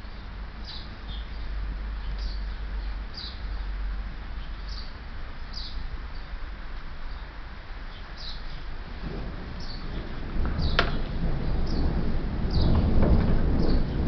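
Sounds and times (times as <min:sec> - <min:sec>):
steady rain hiss: 0:00.0 - 0:14.0
small bird chirping: 0:00.6 - 0:03.8, 0:04.4 - 0:06.4, 0:07.9 - 0:08.6.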